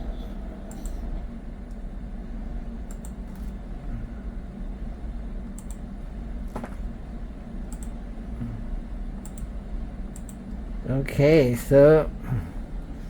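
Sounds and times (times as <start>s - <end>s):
steady low hum: 0.0s - 13.0s
light sharp clicks: 7.7s - 8.0s, 9.2s - 9.5s.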